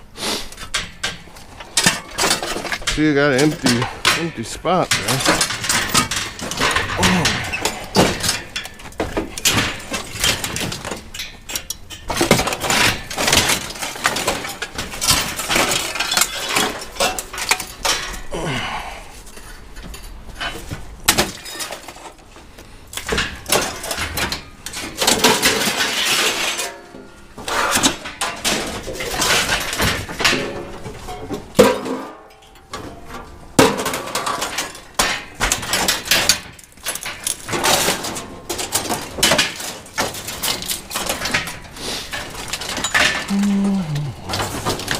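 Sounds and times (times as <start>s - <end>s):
scrap metal clanking onto pile: 0.6s - 18.3s, 19.4s - 43.3s, 44.2s - 44.9s.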